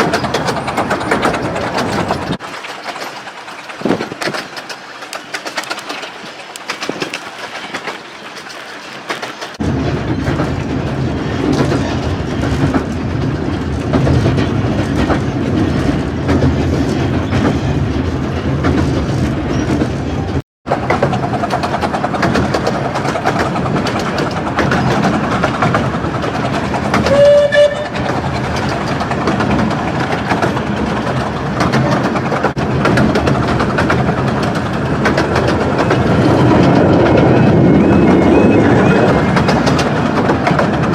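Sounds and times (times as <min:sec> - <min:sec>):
train wheels rumbling on rails: 0:00.0 - 0:40.9
train whistle toot: 0:27.0 - 0:28.0.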